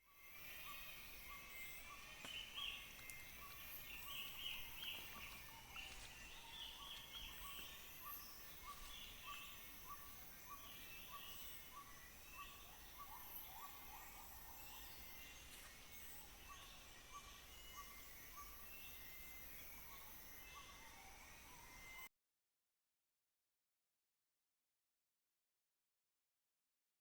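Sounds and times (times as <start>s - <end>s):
high insect hiss: 0.1s - 22.0s
chirping calls: 0.4s - 15.5s.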